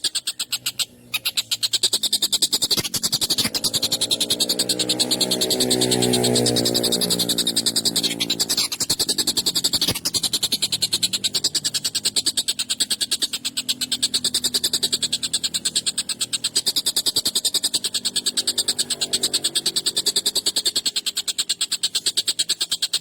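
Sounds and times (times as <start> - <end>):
kingfisher rattling call: 0.0 - 23.0.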